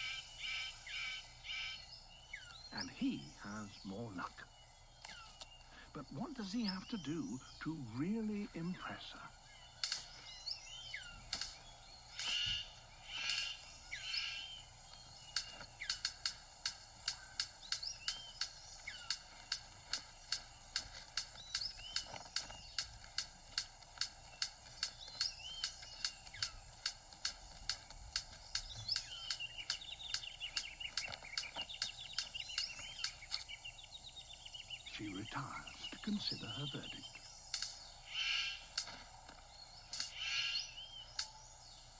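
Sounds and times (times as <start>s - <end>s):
bird sharp clicks: 0.0s - 41.9s
harsh bird calls: 0.0s - 41.9s
thin bird whistles: 38.1s - 38.7s, 39.9s - 41.5s.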